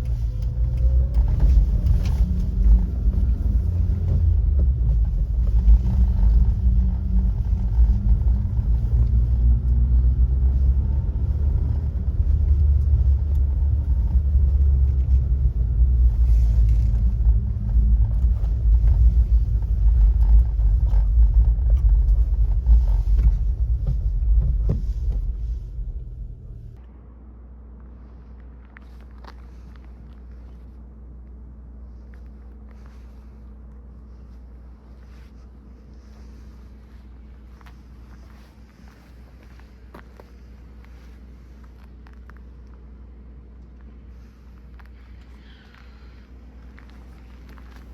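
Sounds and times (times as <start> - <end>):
van engine low rumble: 0.0 - 47.9.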